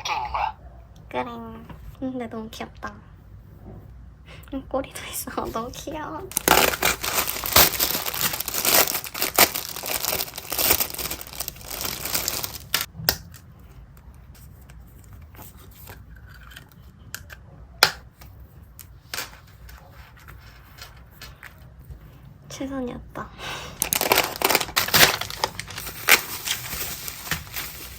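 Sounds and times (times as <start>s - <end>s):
packaging tearing and crinkling: 6.3s - 12.9s, 23.8s - 27.9s.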